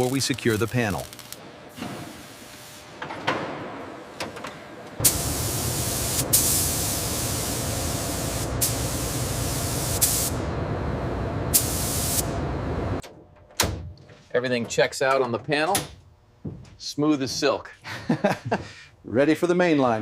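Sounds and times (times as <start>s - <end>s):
loud spraying hiss: 5.0s - 10.4s, 11.5s - 12.3s.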